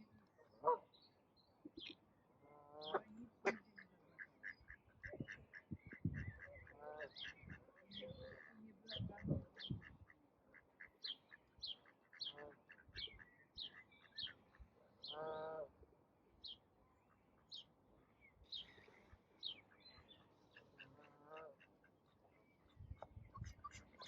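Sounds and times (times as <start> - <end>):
small birds chirping: 0.5 - 2.2, 2.8 - 10.2, 10.8 - 15.5, 16.4 - 24.0
duck quack: 2.5 - 14.4, 20.0 - 21.9, 23.3 - 24.0.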